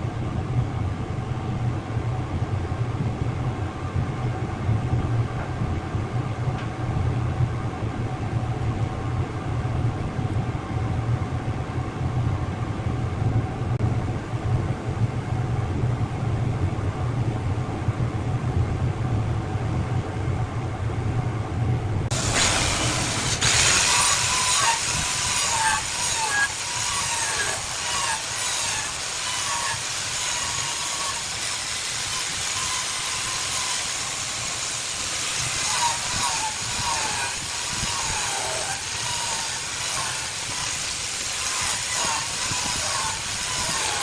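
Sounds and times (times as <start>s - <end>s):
wood lathe humming: 22.1s - 44.0s.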